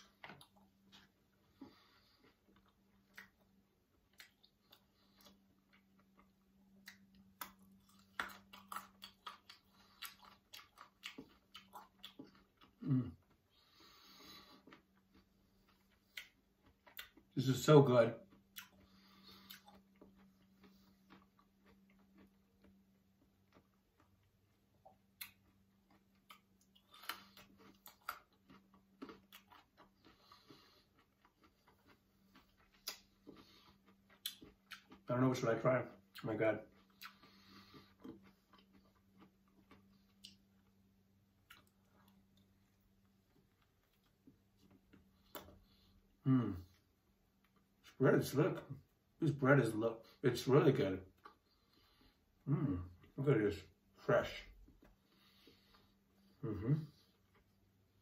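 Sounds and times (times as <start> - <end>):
faint chewing: 0.0 - 49.4, 50.0 - 58.0
low steady hum: 0.0 - 58.0
carrot crunching: 13.6 - 40.6.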